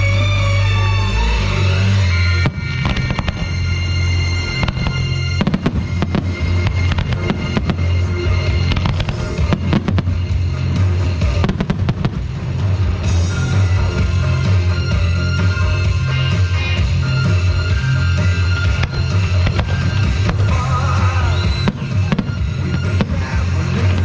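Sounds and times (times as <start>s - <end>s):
loud music with heavy bass: 0.0s - 24.0s
fireworks banging and crackling: 0.9s - 15.2s, 16.9s - 24.0s.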